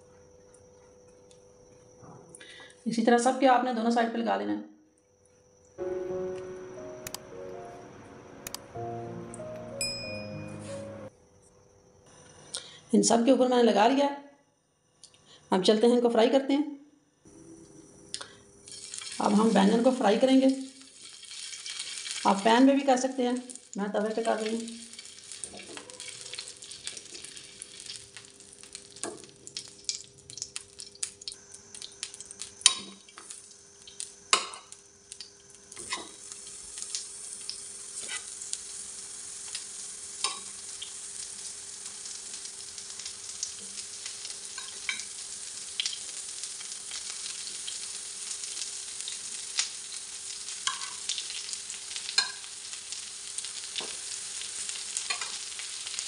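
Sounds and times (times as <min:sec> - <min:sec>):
taps and clicks: 0:06.3 - 0:07.6, 0:08.4 - 0:08.6
vegetables sizzling in oil: 0:17.4 - 0:56.0.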